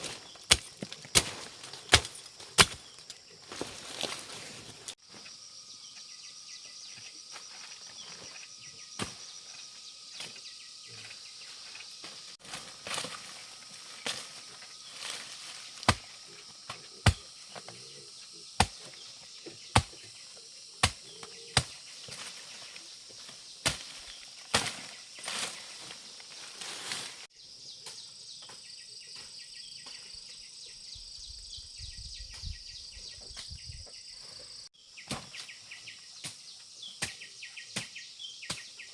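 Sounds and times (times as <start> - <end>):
machete chopping brush: 0.0 - 5.0, 15.0 - 17.7, 18.6 - 19.0, 19.7 - 20.0, 20.8 - 22.6, 23.4 - 25.8, 35.0 - 35.6, 36.2 - 38.7
insects humming: 0.0 - 38.9.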